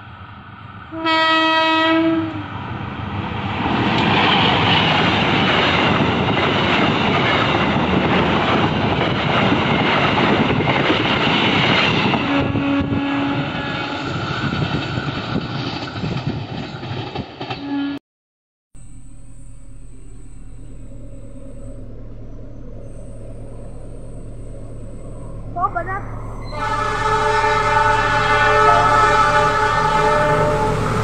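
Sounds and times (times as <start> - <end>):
train wheels rumbling on rails: 0.0 - 17.8, 20.0 - 31.0
diesel locomotive horn: 0.9 - 2.7, 11.8 - 14.4, 17.6 - 18.0, 25.3 - 31.0.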